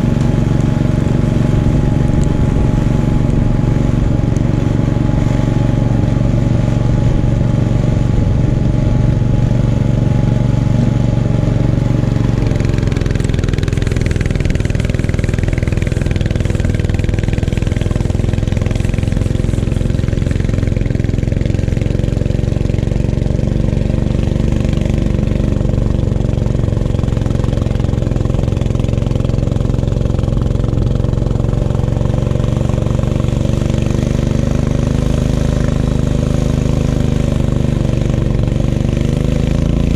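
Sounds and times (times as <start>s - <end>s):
snowblower engine running: 0.0s - 39.9s
hiss: 13.1s - 20.9s.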